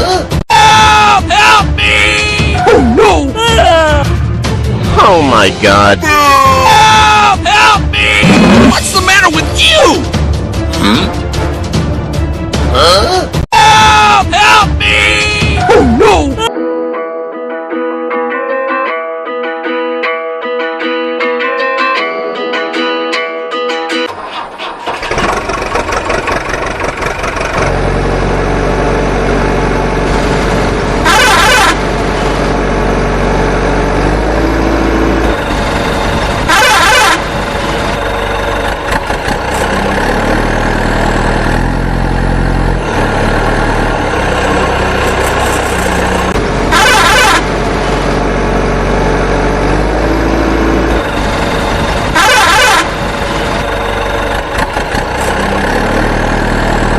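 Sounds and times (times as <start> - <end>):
truck engine running: 24.1 - 56.9
truck horn blasts: 30.9 - 32.4, 34.0 - 38.5, 44.4 - 48.2, 52.0 - 53.6.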